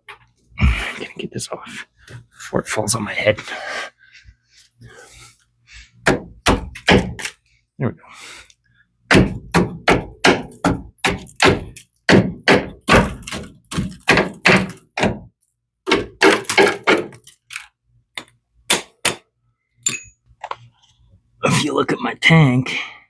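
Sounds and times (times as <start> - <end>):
dull knocks and thuds: 6.1 - 7.2, 9.1 - 15.3.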